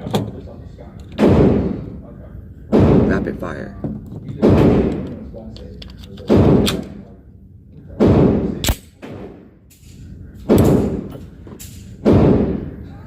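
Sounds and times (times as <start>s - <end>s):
handgun shots: 6.2s - 7.0s, 8.0s - 9.3s
sharp crack: 8.0s - 12.8s.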